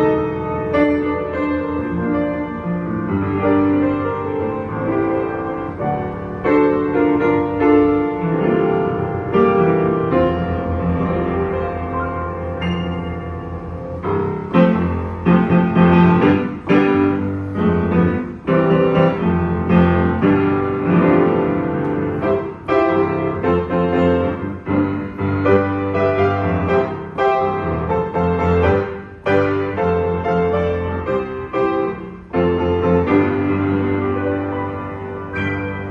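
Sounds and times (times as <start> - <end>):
piano chords: 0.0 - 35.9.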